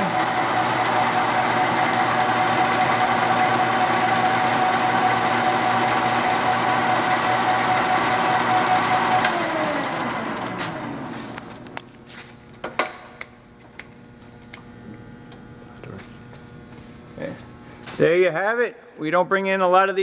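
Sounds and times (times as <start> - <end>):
lathe gear whine: 0.0 - 11.8.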